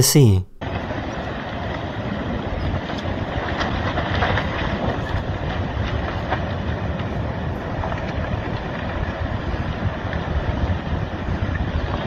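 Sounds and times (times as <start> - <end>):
landslide rumbling roar: 0.6 - 12.0
wind on microphone: 2.6 - 12.0.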